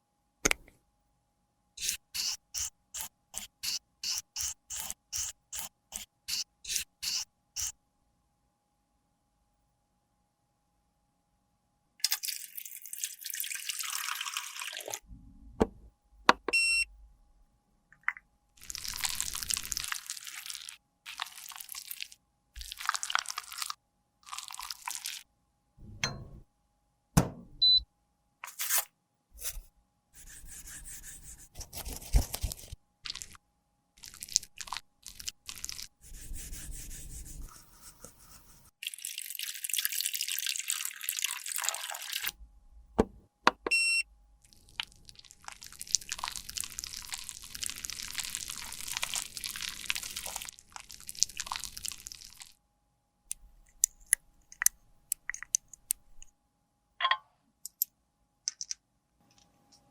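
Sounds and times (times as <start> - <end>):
clicks taps and handling noises: 15.6 - 16.6, 27.2 - 27.8, 43.0 - 43.8, 53.3 - 56.3, 57.0 - 57.9, 58.5 - 59.9.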